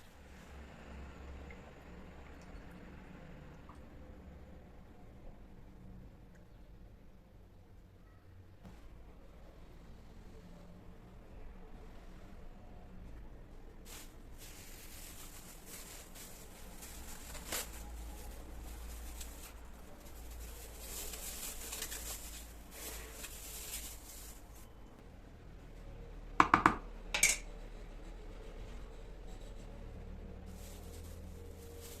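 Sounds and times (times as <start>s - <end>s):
kitchen items rustling: 13.8s - 24.9s, 30.4s - 32.0s.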